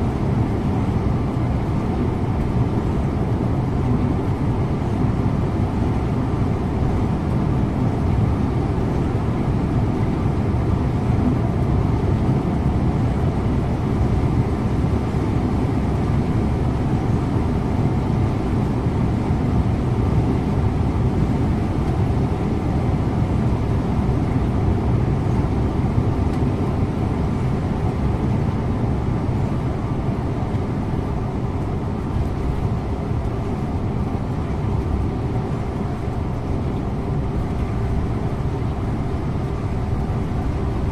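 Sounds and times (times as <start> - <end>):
bus engine drone: 0.0 - 40.9
road rumble: 0.0 - 40.9.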